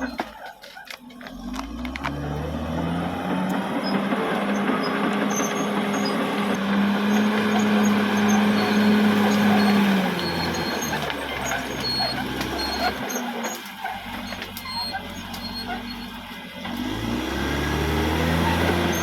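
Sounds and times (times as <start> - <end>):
bulldozer diesel engine under load: 0.0 - 19.0
faint high squeaks: 3.8 - 16.3.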